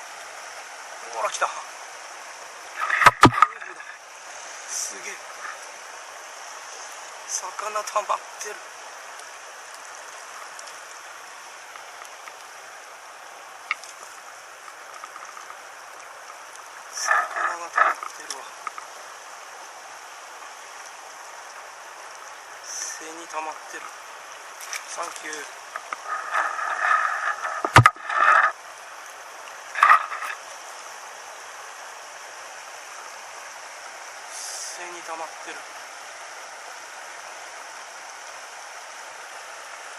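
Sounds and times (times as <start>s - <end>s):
stream water rushing: 0.0s - 39.9s
sharp click: 2.8s - 3.5s.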